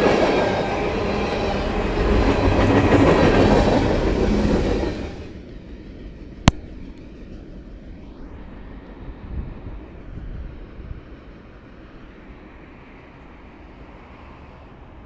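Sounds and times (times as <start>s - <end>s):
sharp click: 6.5s - 6.7s.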